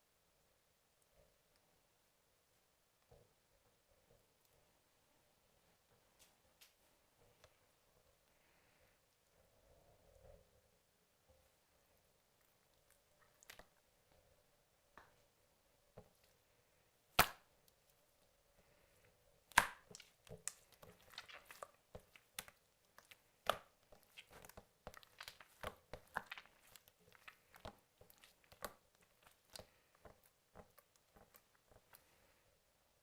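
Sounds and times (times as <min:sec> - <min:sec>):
slime squished by hand: 0:19.4 - 0:32.0
wet clicks and pops: 0:19.5 - 0:31.9.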